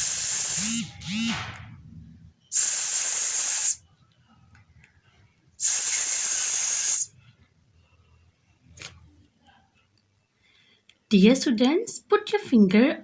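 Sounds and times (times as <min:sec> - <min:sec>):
person making drawn-out s sound: 0:05.6 - 0:07.0.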